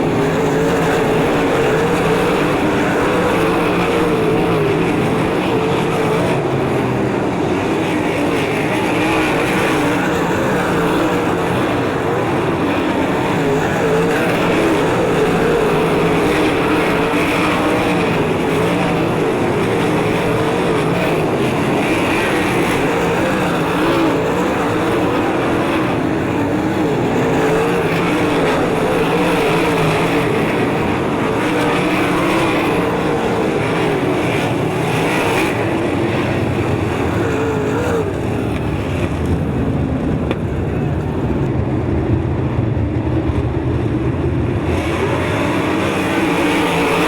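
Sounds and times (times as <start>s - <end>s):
race car engines passing: 0.0s - 47.0s.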